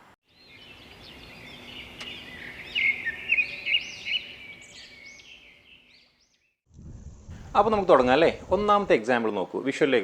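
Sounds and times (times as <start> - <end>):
birds chirping and calling: 0.3 - 6.5.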